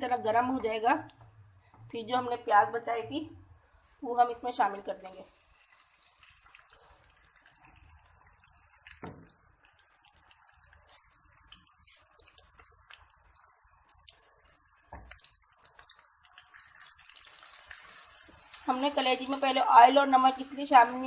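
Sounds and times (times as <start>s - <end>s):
oil crackling in a pan: 4.3s - 21.0s.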